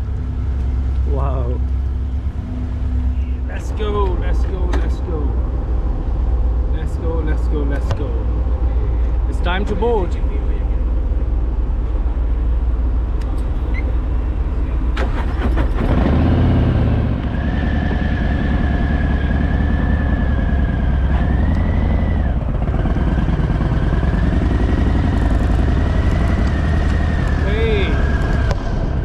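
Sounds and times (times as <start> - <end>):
steady high whine: 0.0 - 15.4
motorcycle engine rumbling: 0.0 - 29.0.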